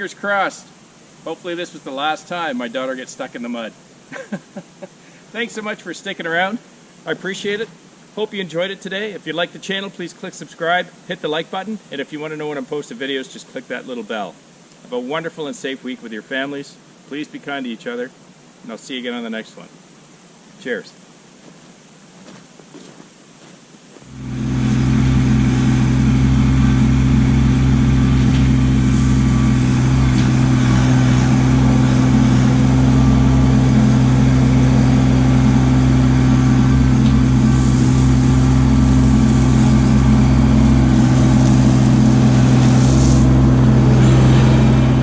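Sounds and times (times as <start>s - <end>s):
tractor diesel engine running: 24.1s - 45.0s.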